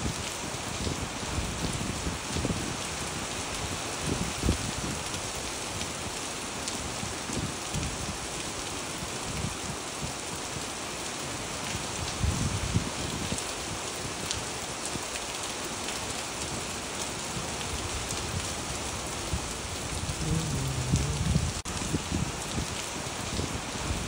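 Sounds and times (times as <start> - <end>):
rain on wet pavement: 0.0 - 24.0
low rumbles: 19.8 - 21.6.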